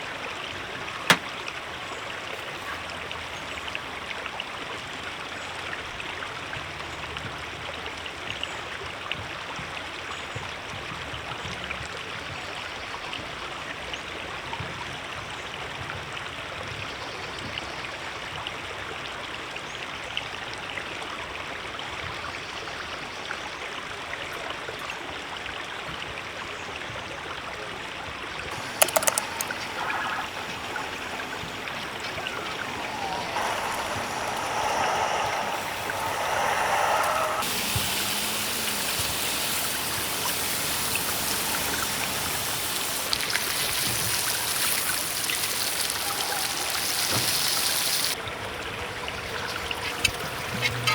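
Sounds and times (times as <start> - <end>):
sharp clicks: 28.6 - 42.3
river water rushing over rocks: 28.6 - 50.9.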